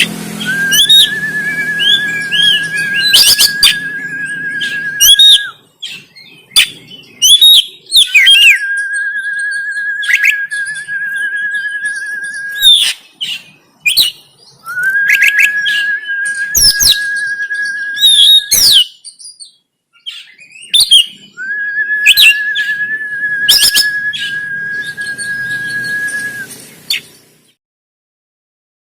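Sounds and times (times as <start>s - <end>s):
bird sharp chirps: 0.0s - 8.6s
bird whistled song: 0.0s - 27.6s.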